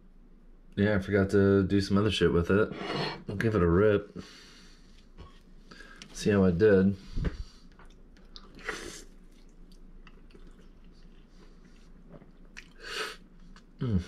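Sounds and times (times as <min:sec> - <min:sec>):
person biting and chewing: 0:07.8 - 0:13.8.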